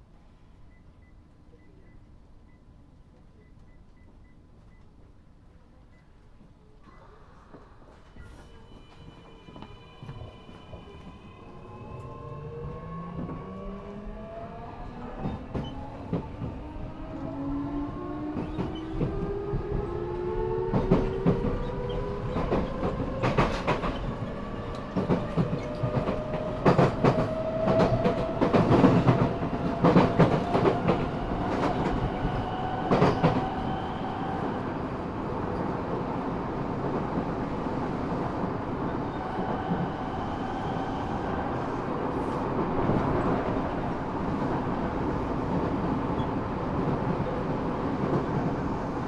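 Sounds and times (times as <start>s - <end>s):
train inverter whining: 7.5s - 49.0s.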